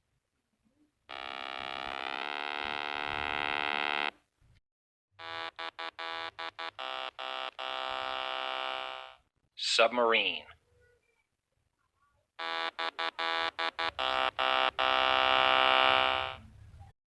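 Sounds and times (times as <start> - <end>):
synthesized engine buzz: 1.1 - 4.2, 5.2 - 9.3, 12.4 - 16.4.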